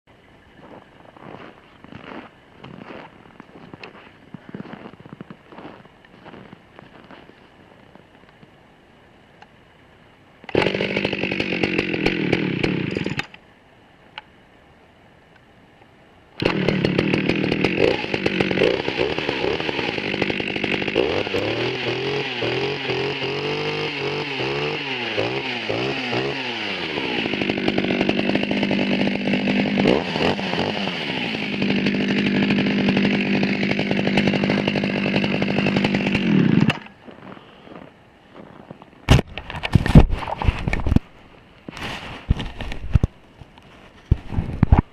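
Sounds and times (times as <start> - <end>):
chainsaw engine revving: 10.5 - 13.3, 16.4 - 37.0.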